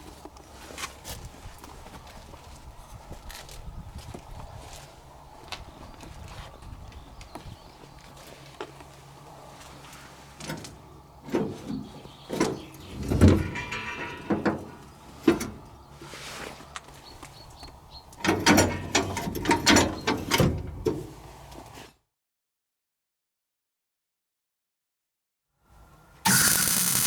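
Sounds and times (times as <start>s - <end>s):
metal knocks and clanks: 12.4s - 15.6s
metal scraping and ringing: 13.4s - 14.4s.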